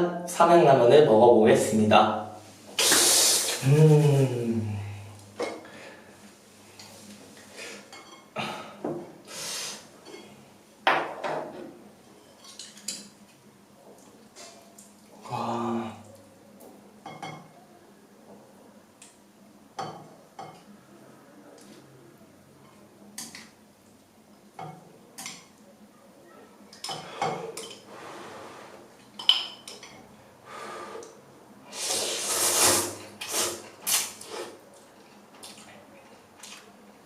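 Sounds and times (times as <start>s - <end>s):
utensils clinking against bowl: 12.2s - 13.2s, 26.8s - 27.9s, 29.1s - 30.1s
noodle slurping: 31.7s - 34.6s.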